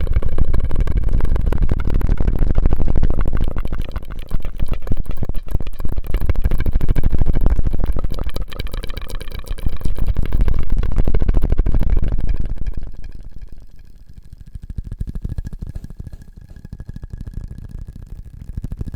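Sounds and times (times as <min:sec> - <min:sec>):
low rumble: 0:00.0 - 0:08.2
mouth clicks and crackles: 0:00.0 - 0:18.9.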